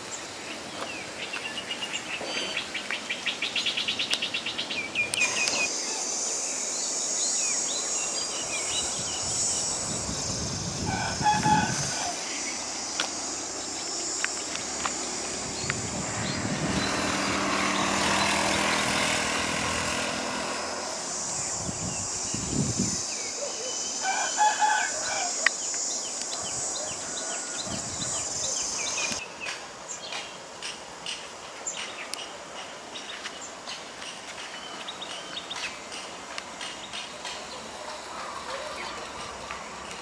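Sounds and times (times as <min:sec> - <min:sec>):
high insect buzz: 0:00.0 - 0:40.0
rooster crowing: 0:10.8 - 0:12.4, 0:24.0 - 0:25.5, 0:26.8 - 0:28.3.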